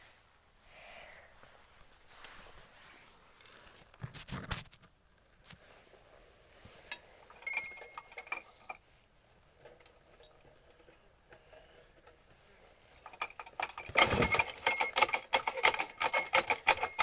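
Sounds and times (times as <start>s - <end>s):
metal rattle: 13.0s - 17.0s
metallic clicks and clatters: 13.0s - 17.0s.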